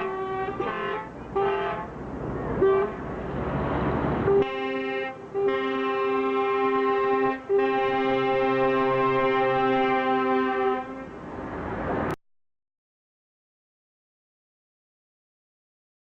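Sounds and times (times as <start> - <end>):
truck air horn blasts: 0.0 - 2.0, 2.6 - 3.1, 4.2 - 11.2.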